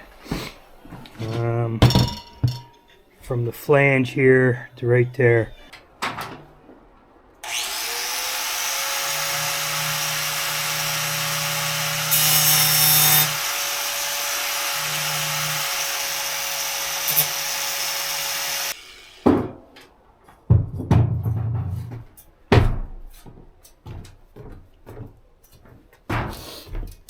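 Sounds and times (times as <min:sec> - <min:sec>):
power tool cutting metal pipe: 0:07.4 - 0:19.3.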